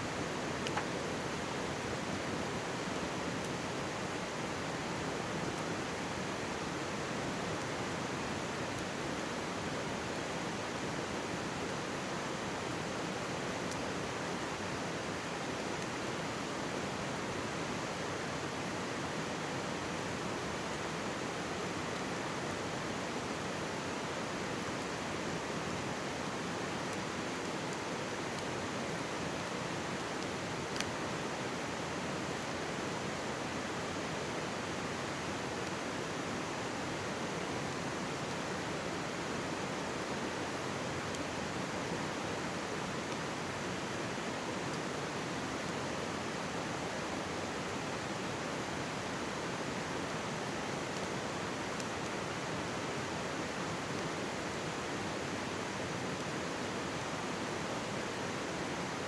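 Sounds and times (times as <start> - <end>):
mountain stream babbling: 0.0 - 59.0
campfire crackling ticks: 0.6 - 1.0, 27.6 - 31.0.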